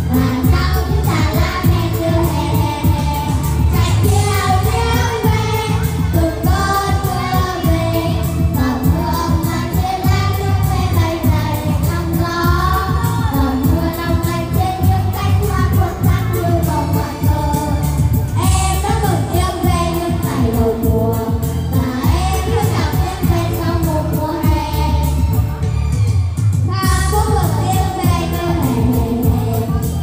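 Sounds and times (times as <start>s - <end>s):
music with steady beat and bass: 0.0s - 30.0s.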